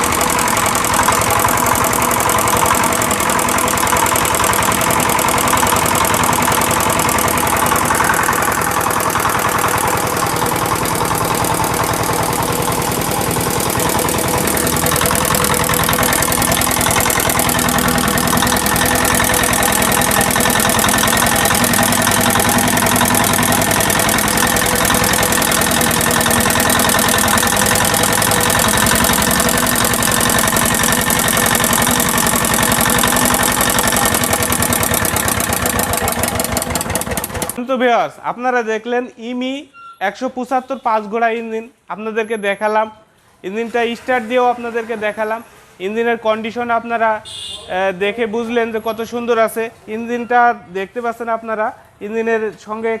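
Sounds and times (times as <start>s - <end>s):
diesel engine running: 0.0s - 37.6s.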